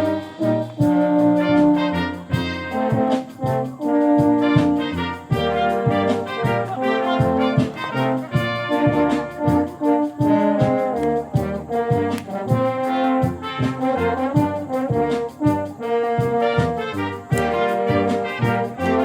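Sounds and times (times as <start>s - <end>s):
wind band playing: 0.0s - 19.0s
drum strikes: 4.2s - 19.0s.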